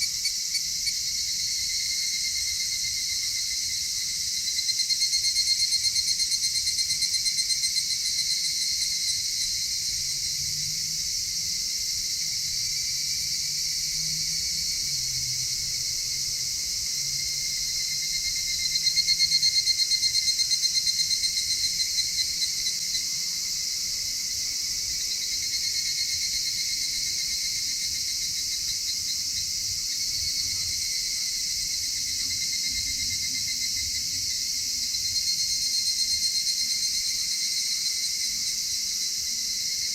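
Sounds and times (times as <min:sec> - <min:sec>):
crickets and insects trilling: 0:00.0 - 0:39.9
nearer insect trill: 0:00.0 - 0:39.9.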